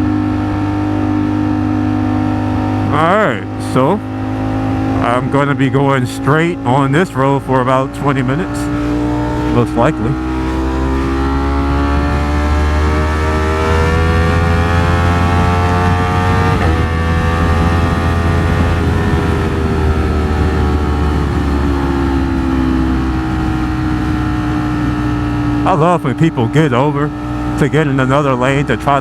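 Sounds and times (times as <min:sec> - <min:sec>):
motorcycle engine revving: 0:00.0 - 0:29.0
wind rumble: 0:03.9 - 0:25.6.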